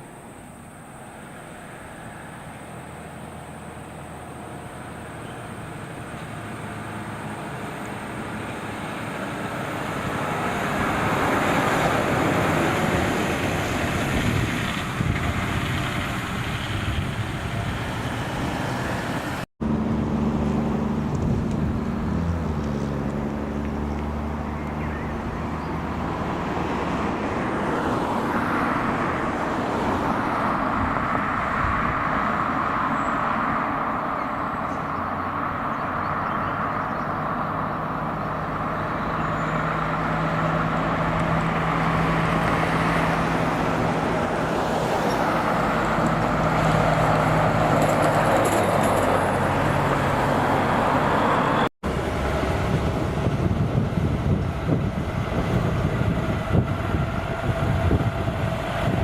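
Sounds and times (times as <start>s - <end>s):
truck engine hum: 0.0s - 59.0s
tyre and road noise: 0.0s - 59.0s.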